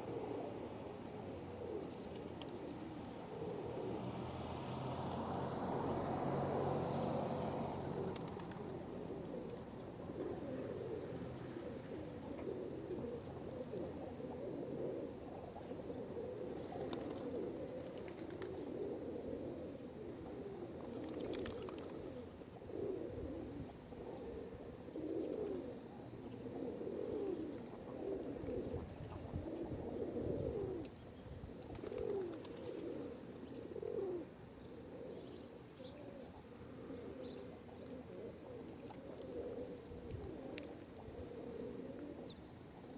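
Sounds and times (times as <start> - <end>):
pigeons cooing: 0.0 - 42.9.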